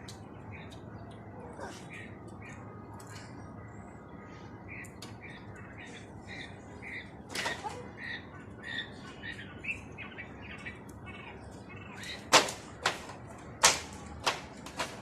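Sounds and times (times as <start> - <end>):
quail peeping: 4.6 - 14.4
sharp loud clicks: 12.0 - 15.0.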